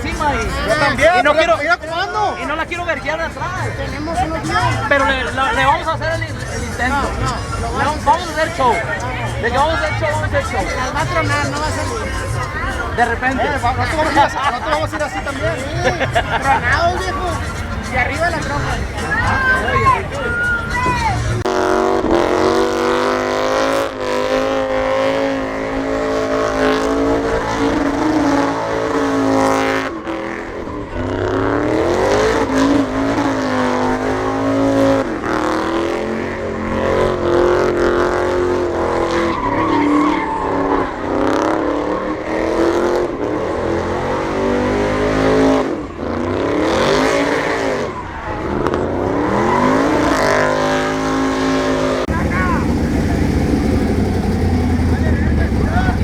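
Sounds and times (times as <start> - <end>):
tires squealing on pavement: 0.0 - 56.0
truck engine revving hard: 0.0 - 56.0.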